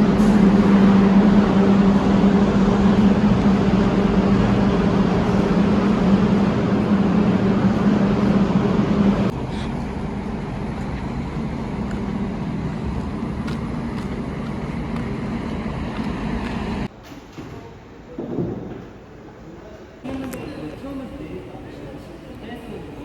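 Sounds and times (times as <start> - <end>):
vehicle engine hum: 0.0 - 16.9.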